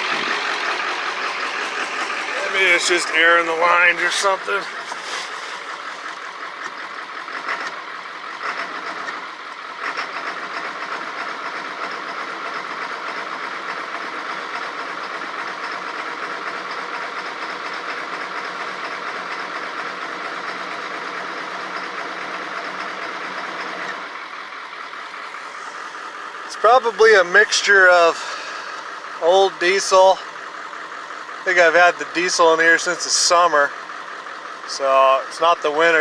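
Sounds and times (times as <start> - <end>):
diesel engine running rough: 0.0 - 36.0.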